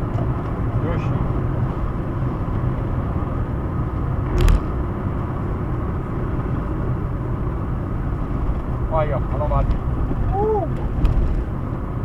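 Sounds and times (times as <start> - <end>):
car cabin road and engine noise: 0.0 - 12.0
short thump: 4.3 - 4.8.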